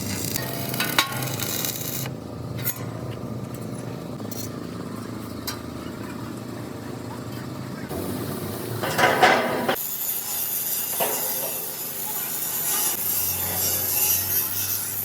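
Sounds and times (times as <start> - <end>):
steady low background hum: 0.0 - 9.8.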